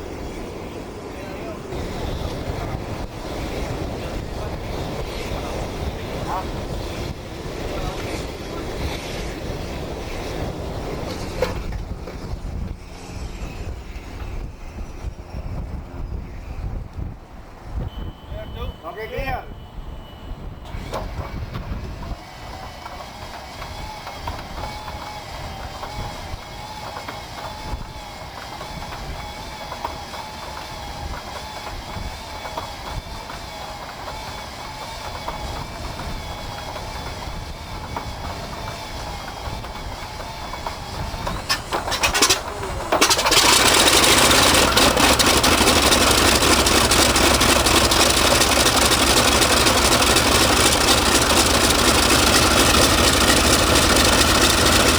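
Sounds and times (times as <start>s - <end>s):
piston engine turning over and running: 20.7s - 54.9s
starter whining: 38.9s - 54.9s.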